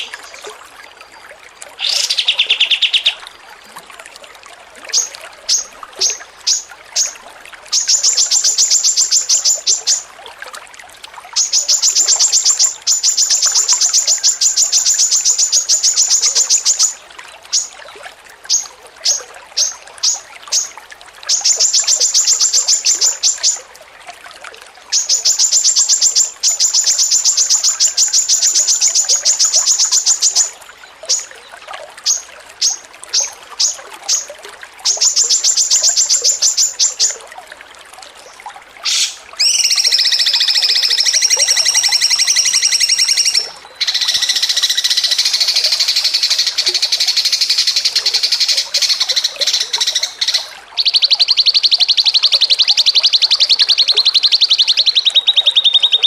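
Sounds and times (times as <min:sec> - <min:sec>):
songbird chip notes: 0:38.8 - 0:56.0.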